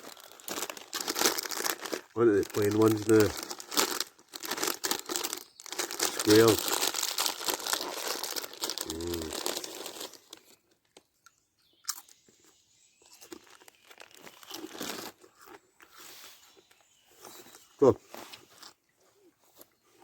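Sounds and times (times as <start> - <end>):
crisp packet rustling: 0.0 - 11.0, 13.2 - 15.2
crisps being eaten: 0.0 - 16.6.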